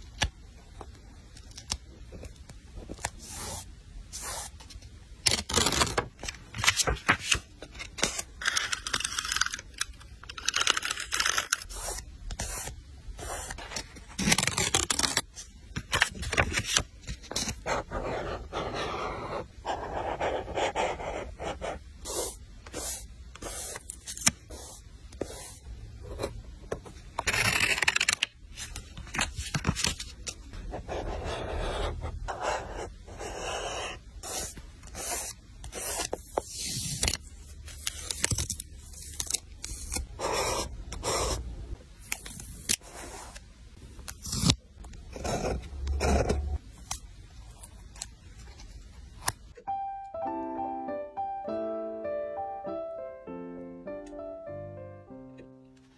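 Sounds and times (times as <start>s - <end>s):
paper scraping and rustling: 5.3s - 9.6s, 27.2s - 30.3s.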